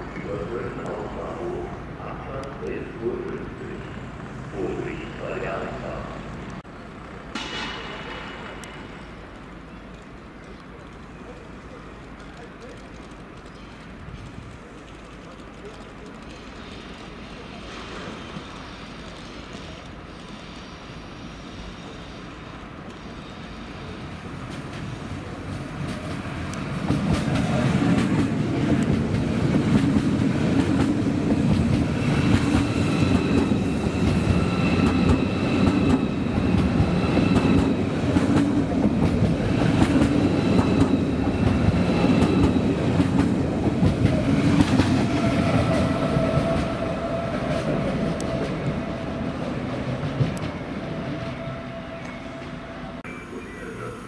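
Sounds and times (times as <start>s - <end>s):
steady high whine: 0.0s - 11.2s, 50.8s - 54.0s
train wheels rumbling on rails: 0.0s - 53.0s.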